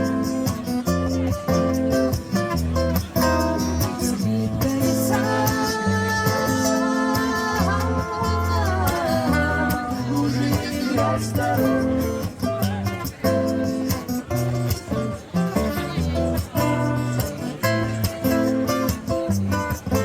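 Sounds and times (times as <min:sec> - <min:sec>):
acoustic guitar strumming: 0:00.0 - 0:20.0
bass line: 0:02.5 - 0:13.6.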